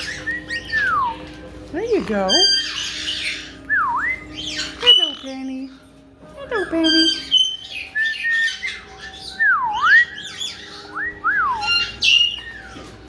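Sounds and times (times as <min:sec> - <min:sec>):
parrots squawking: 0:00.0 - 0:13.0
swooping whistles: 0:07.9 - 0:12.9.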